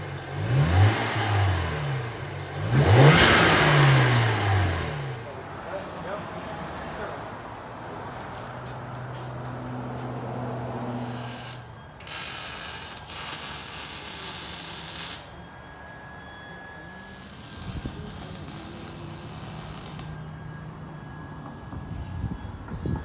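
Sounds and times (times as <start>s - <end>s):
pneumatic ratchet running: 10.9s - 15.3s, 16.9s - 20.2s.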